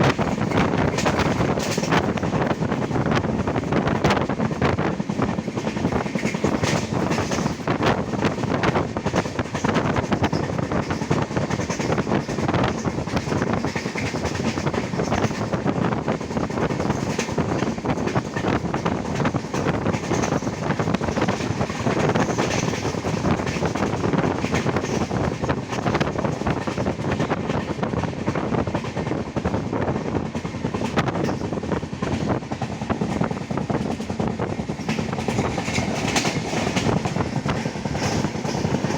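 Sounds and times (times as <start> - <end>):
train rumble and air rush: 0.0 - 38.9
wheels clickety-clack on rail joints: 0.0 - 38.9.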